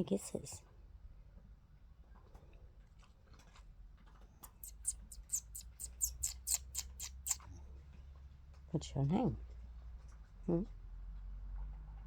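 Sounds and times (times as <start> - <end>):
parakeet kissing clicks: 4.4 - 7.4.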